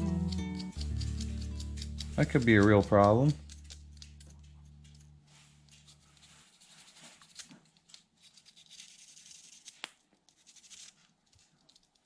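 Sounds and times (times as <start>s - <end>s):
small parts rustling and clicking: 0.3s - 12.0s.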